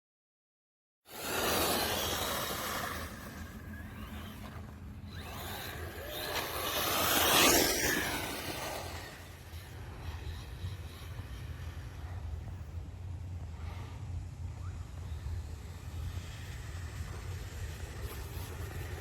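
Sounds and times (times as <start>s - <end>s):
tyres rushing on ground: 1.1s - 12.4s
rc car motor whine: 1.1s - 19.0s.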